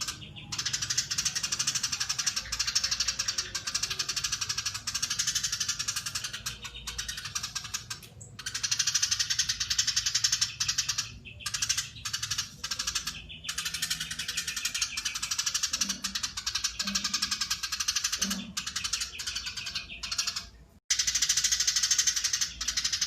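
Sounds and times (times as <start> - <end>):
sparrow chattering: 0.0 - 23.0.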